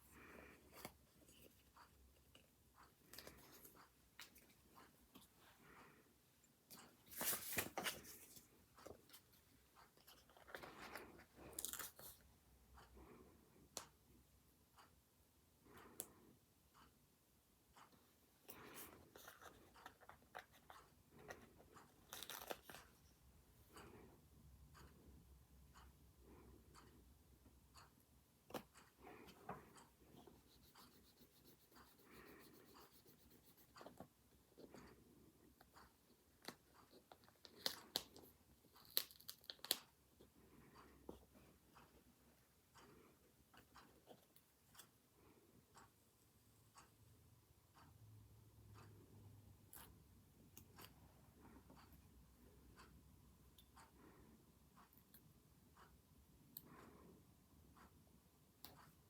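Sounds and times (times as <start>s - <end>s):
pen scratching on paper: 30.4s - 34.0s.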